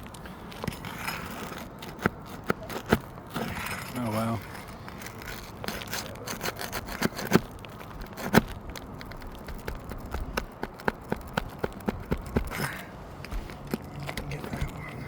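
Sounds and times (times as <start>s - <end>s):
roof tool prying nails clicking: 5.0s - 14.8s.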